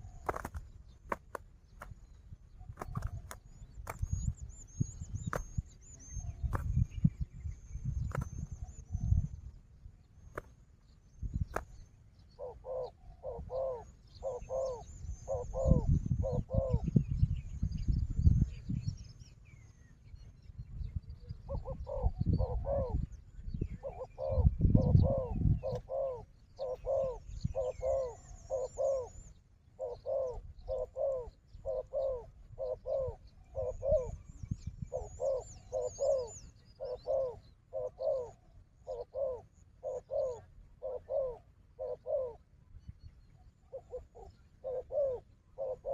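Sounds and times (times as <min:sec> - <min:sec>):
dove cooing: 0:00.0 - 0:01.4, 0:12.3 - 0:17.0, 0:21.4 - 0:23.1, 0:23.7 - 0:42.5, 0:43.6 - 0:45.9.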